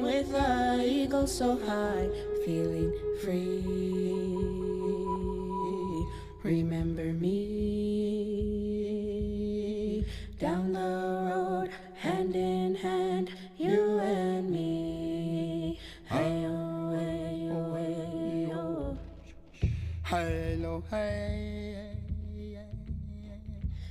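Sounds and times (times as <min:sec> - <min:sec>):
person singing wordless notes: 0:00.0 - 0:08.5
breaths: 0:10.0 - 0:10.4, 0:15.8 - 0:16.1, 0:19.5 - 0:20.1.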